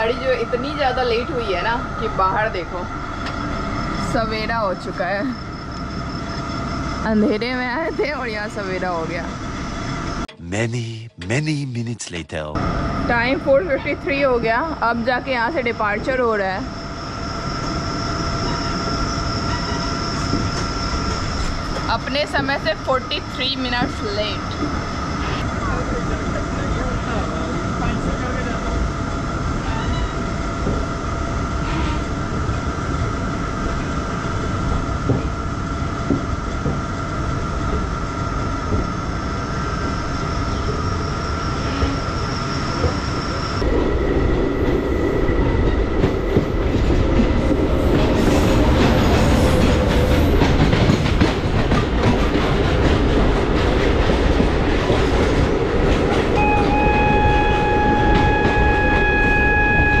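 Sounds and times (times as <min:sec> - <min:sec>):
goods train passing: 0:00.0 - 1:00.0
train running on rails: 0:00.0 - 1:00.0
train horn: 0:29.6 - 0:30.2, 0:56.3 - 1:00.0.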